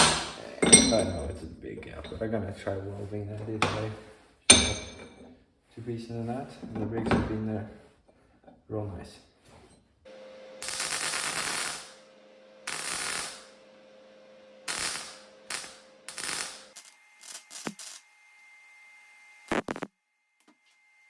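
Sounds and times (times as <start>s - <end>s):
welding machine hum: 10.1s - 19.9s
arc welder crackling: 10.6s - 19.9s.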